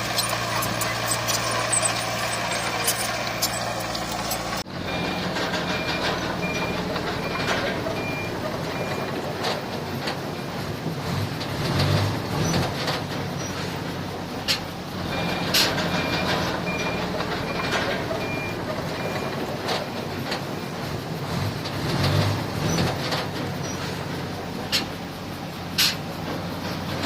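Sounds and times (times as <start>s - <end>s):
heavy diesel engine running: 0.0s - 27.0s
backup alarm beeping: 0.3s - 9.1s, 15.2s - 19.3s.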